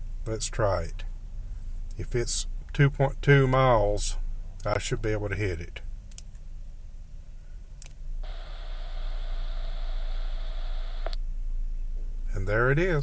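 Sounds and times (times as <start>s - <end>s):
radio speaker hiss with high tone: 8.2s - 11.2s
squelch click: 10.1s - 11.2s.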